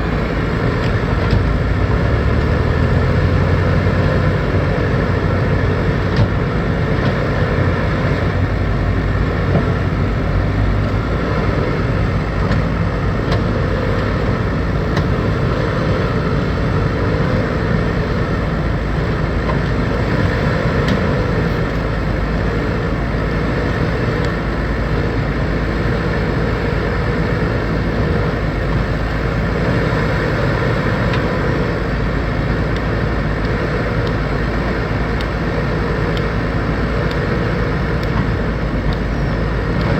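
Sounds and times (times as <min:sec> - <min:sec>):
diesel engine running: 0:00.0 - 0:39.9
light ticks: 0:32.7 - 0:34.2, 0:35.1 - 0:35.4, 0:36.1 - 0:36.3, 0:37.0 - 0:37.3, 0:38.0 - 0:39.1.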